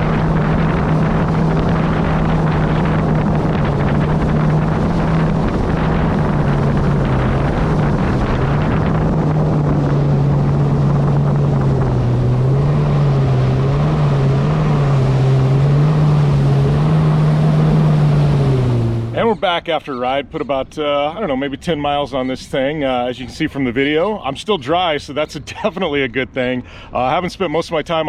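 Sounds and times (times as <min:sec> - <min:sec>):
wind on microphone: 0:00.0 - 0:19.7
jet ski engine running: 0:00.0 - 0:21.4
water noise: 0:00.0 - 0:26.0.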